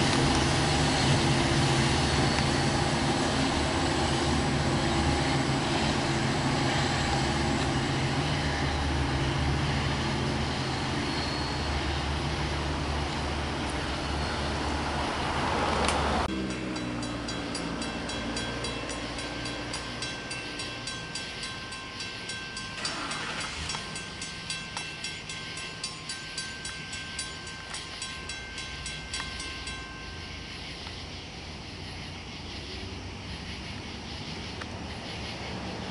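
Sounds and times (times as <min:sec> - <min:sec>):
locomotive engine droning: 0:00.0 - 0:35.9
soft regular pulses: 0:16.2 - 0:32.6.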